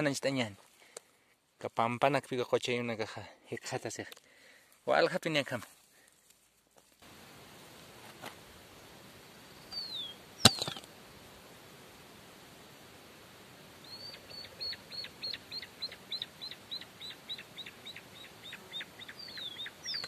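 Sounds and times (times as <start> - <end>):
faint outdoor hiss: 0.0 - 20.0
small bird whistling calls: 9.7 - 10.7, 13.8 - 20.0.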